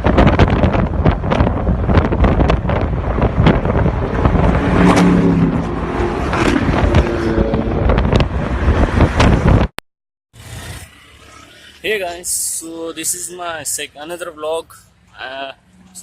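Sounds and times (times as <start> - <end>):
wind buffeting microphone: 0.0 - 9.7
car engines revving: 0.5 - 9.7.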